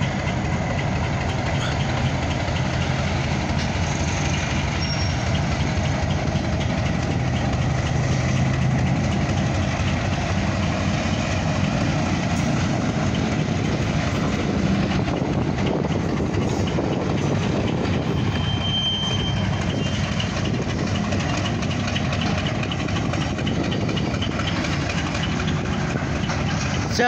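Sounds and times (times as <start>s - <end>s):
diesel locomotive engine running: 0.0s - 27.0s
train wheels on rails: 0.0s - 27.0s.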